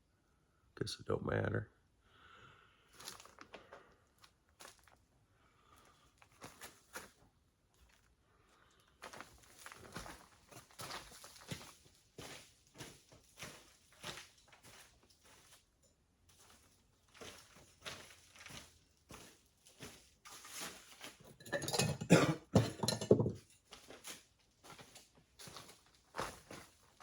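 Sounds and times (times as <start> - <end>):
footsteps: 9.0 - 15.6, 16.3 - 21.8
metal parts clattering: 21.3 - 23.5.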